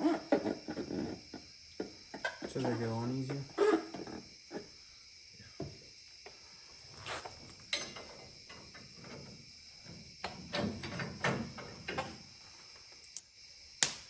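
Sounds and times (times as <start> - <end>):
metal tools clinking: 13.0 - 13.5.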